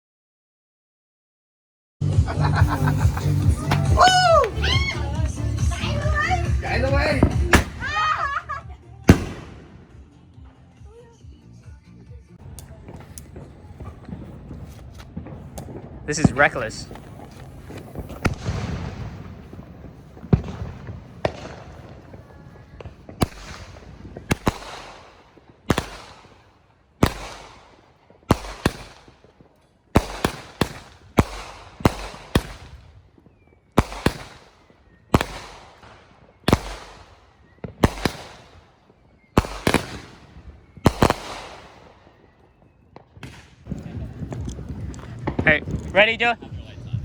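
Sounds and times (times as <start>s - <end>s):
firework bangs with echo: 2.4s - 10.8s, 12.4s - 47.0s
firework whistles: 2.5s - 8.3s, 12.9s - 25.1s, 30.2s - 44.9s.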